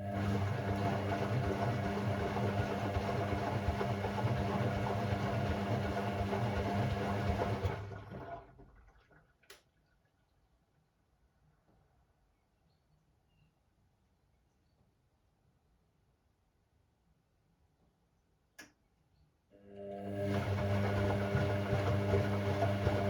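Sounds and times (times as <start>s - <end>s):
washing machine running: 0.0s - 9.2s, 19.7s - 23.0s.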